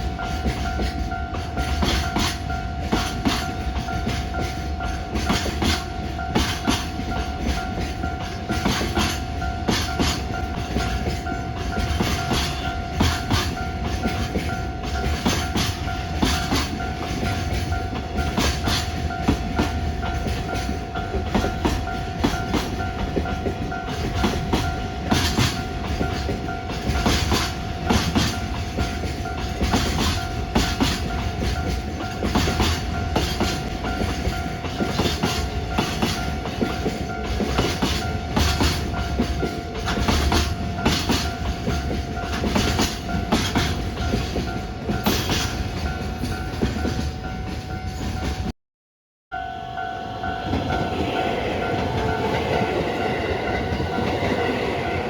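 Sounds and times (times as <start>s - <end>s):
train rumble: 0.0s - 48.5s, 49.3s - 55.0s
train wheels clacking: 0.0s - 48.5s, 49.4s - 55.0s
level crossing alarm ringing: 49.3s - 55.0s.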